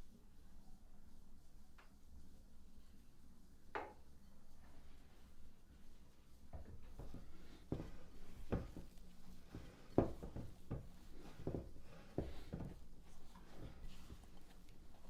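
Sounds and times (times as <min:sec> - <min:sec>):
irregular knocks and taps: 0:06.5 - 0:08.9, 0:09.5 - 0:12.8.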